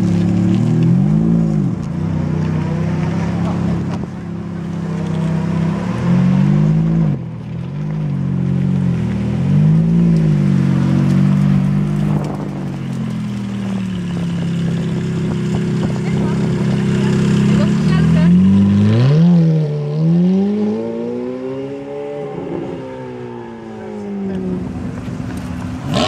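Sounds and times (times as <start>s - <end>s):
car engine low-rev burble: 0.0s - 22.8s
car engine revving: 0.0s - 26.0s.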